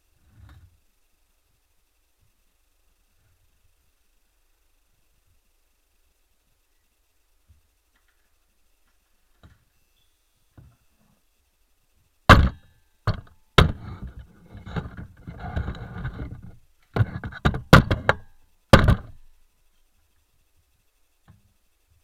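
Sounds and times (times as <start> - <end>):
sharp knocks and thuds: 12.3 - 19.2
rustling and scraping: 12.4 - 19.2.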